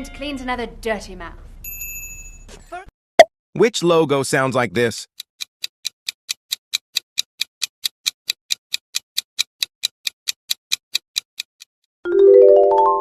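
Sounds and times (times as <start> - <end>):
countdown timer ticking: 3.8 - 11.7.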